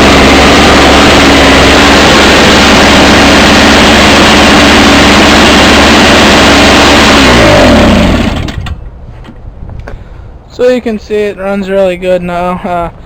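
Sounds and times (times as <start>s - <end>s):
snowblower engine running: 0.0s - 8.8s.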